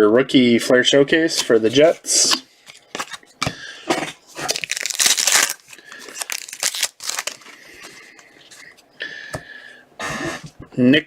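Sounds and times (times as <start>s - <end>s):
packaging crinkling and tearing: 4.1s - 8.0s.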